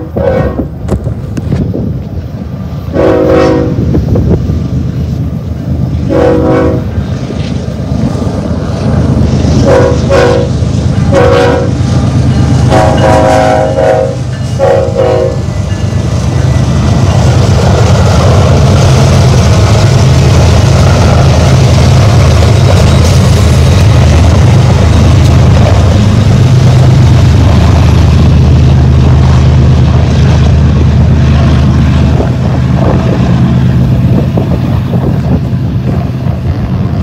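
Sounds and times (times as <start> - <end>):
locomotive air horn blasts: 0.0 - 0.7, 2.9 - 3.9, 6.1 - 6.9, 9.6 - 11.8, 12.6 - 15.5
locomotive engines rumbling: 0.0 - 37.0.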